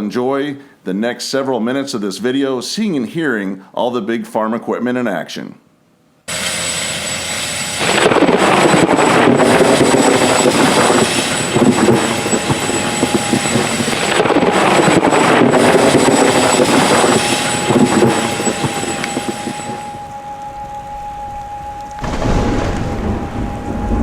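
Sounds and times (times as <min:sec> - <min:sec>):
combine harvester engine and threshing: 0:06.3 - 0:24.0
thin high whine: 0:06.3 - 0:24.0.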